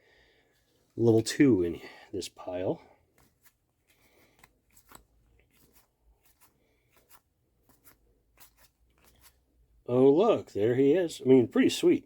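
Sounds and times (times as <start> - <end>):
trading cards sliding and flipping: 3.0 - 9.6.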